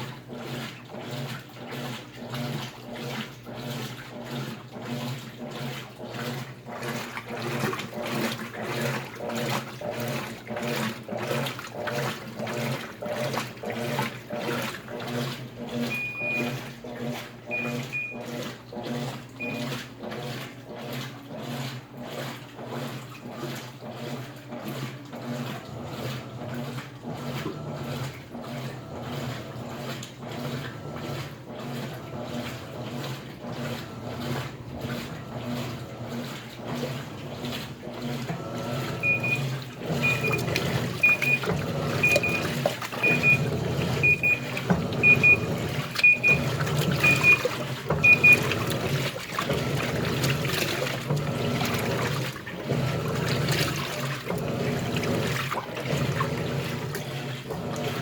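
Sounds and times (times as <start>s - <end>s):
washing machine motor hum: 0.0s - 58.0s
water churning: 0.0s - 58.0s
machine beeping: 15.8s - 16.7s, 17.5s - 18.4s, 19.4s - 19.8s, 38.5s - 50.4s.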